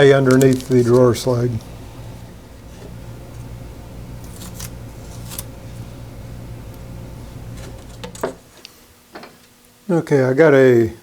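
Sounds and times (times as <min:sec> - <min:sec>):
scratchy rustles: 0:00.0 - 0:01.8, 0:04.2 - 0:06.0
steady low hum: 0:00.0 - 0:11.0.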